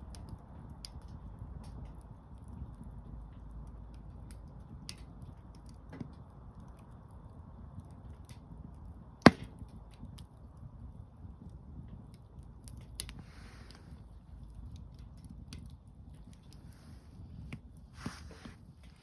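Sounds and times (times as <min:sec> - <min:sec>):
campfire crackling and popping: 0:00.0 - 0:19.0
low rush of fire: 0:00.0 - 0:19.0
loud snap: 0:09.3 - 0:09.5.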